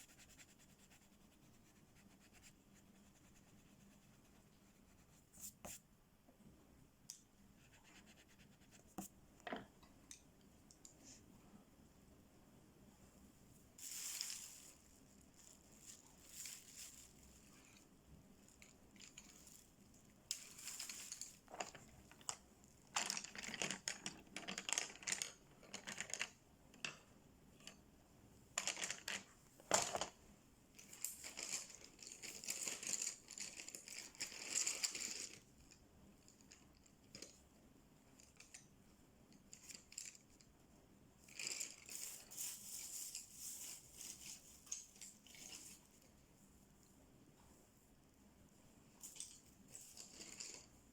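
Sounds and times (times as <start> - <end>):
coloring strokes scratching on paper: 0.0 - 5.8, 7.6 - 9.1.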